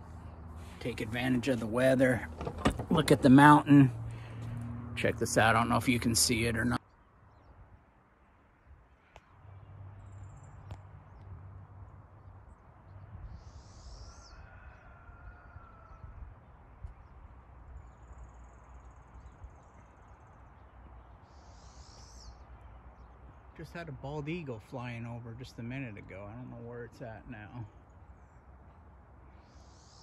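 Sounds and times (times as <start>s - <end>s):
faint bird calls: 13.3s - 16.2s, 19.2s - 23.6s, 27.0s - 30.0s
bird chirping: 16.9s - 30.0s.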